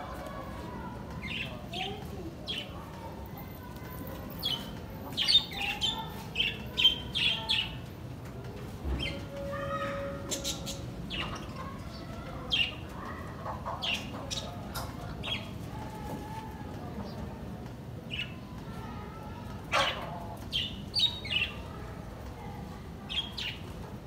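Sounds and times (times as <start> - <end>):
small birds chirping: 0.3 - 3.4, 4.2 - 7.9, 10.3 - 15.7, 18.0 - 21.8, 23.0 - 23.8.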